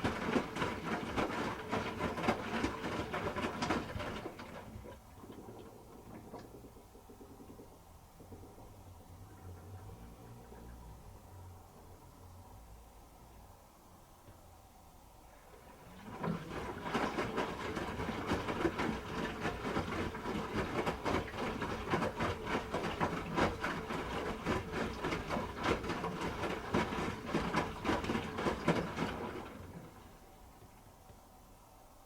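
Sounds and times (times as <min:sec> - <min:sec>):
laundry tumbling clatter: 0:00.0 - 0:07.6, 0:15.6 - 0:30.9
washing machine drum turning: 0:15.9 - 0:30.0.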